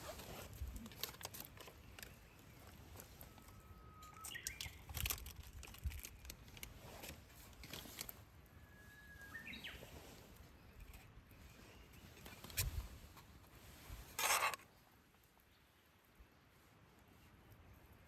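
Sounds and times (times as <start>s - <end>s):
songbird whistled call: 8.6s - 9.8s.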